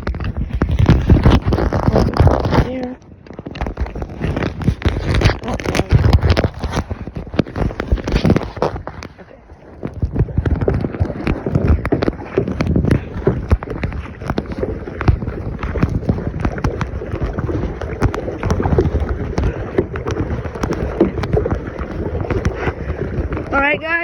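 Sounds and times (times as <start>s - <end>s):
wind on microphone: 0.0s - 24.0s.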